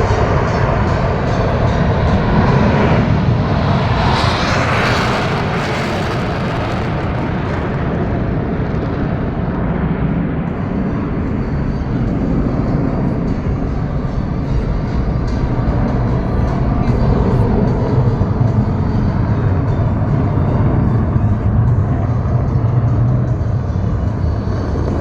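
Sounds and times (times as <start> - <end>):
jet engines running: 0.0 - 25.0.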